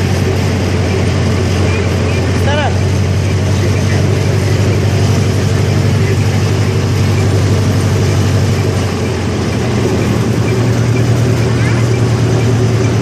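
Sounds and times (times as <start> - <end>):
ride train engine hum: 0.0 - 13.0
rumbling noise: 0.0 - 13.0.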